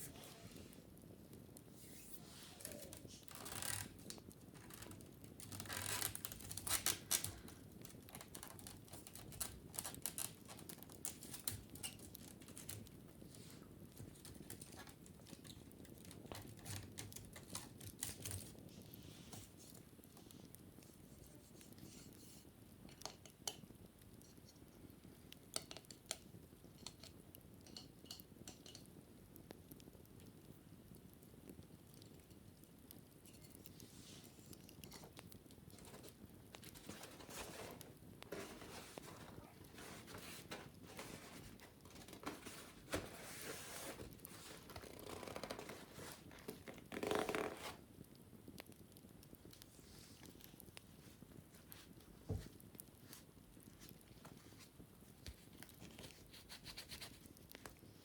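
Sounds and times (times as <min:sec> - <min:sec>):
scratching on wicker basket: 0:00.0 - 0:00.8, 0:01.7 - 0:19.8, 0:33.4 - 0:47.8, 0:55.3 - 0:57.8
wicker basket clicks and rustles: 0:02.0 - 0:19.8, 0:25.6 - 0:28.9, 0:33.2 - 0:47.8.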